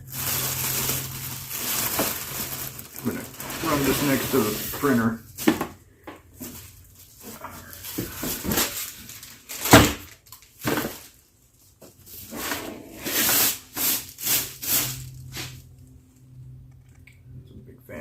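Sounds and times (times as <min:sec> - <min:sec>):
plastic packaging crinkling: 0:00.0 - 0:05.7, 0:06.4 - 0:11.2.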